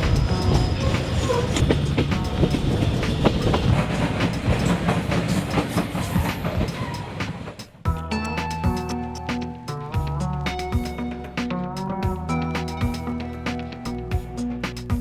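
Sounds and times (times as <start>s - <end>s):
train rumbling on rails: 0.0s - 7.8s.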